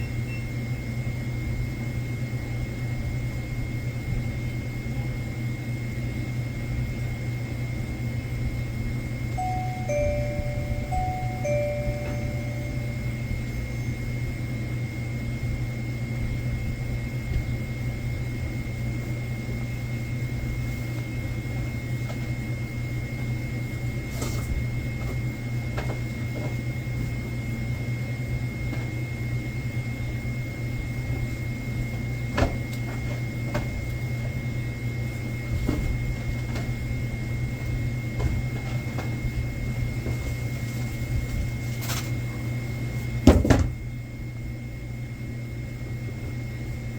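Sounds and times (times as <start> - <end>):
low machine hum: 9.3 - 18.4
high-pitched tone: 9.4 - 13.9.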